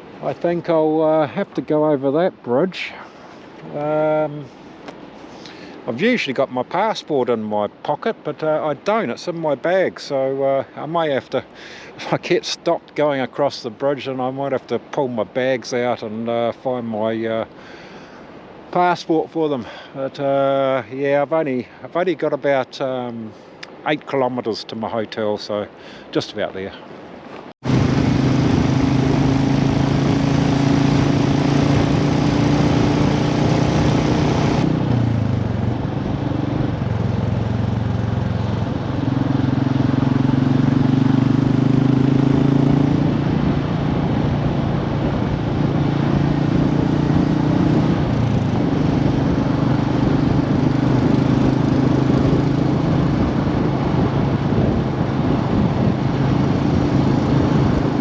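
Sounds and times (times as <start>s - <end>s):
wind noise: 26.8s - 58.0s
motorcycle engine running: 27.6s - 58.0s.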